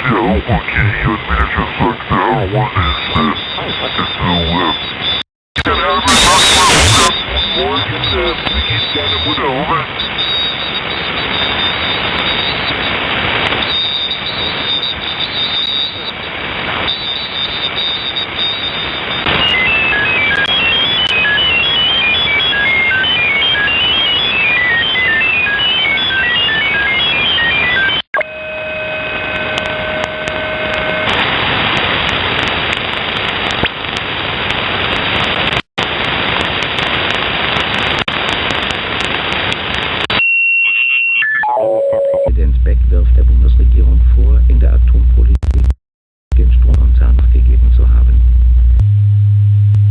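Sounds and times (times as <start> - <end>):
radio static hissing: 0.0 - 41.5, 42.1 - 48.8.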